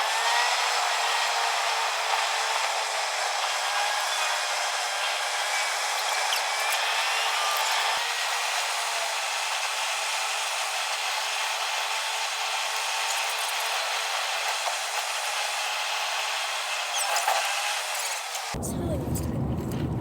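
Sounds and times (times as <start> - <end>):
road and wind noise in car: 18.6 - 20.0.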